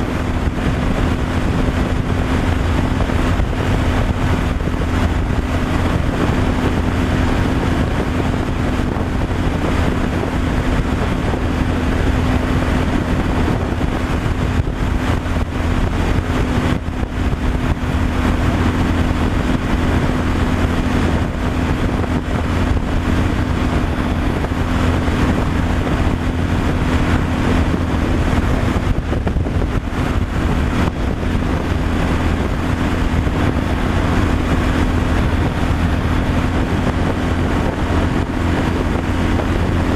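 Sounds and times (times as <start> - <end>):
constant low hum: 0.0 - 39.9
truck engine droning: 0.0 - 39.9.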